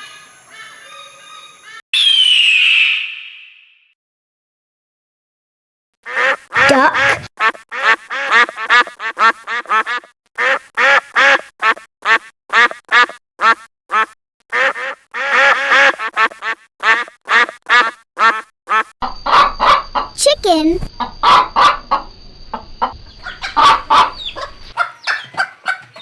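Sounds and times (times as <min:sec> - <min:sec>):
duck quacking: 0:06.0 - 0:19.8, 0:23.2 - 0:26.0.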